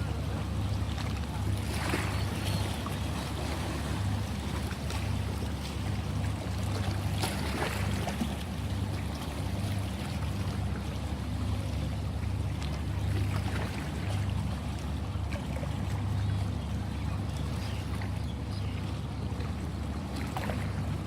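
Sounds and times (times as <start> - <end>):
sea waves washing: 0.0 - 16.1.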